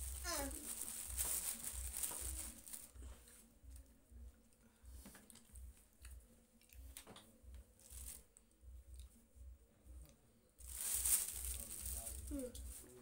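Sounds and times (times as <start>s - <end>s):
faint chewing: 1.7s - 7.6s.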